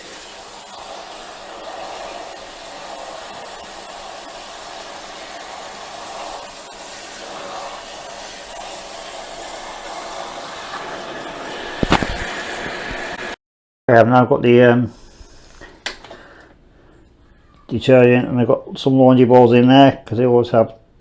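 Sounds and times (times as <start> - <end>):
shower water running into tub: 0.0 - 13.4.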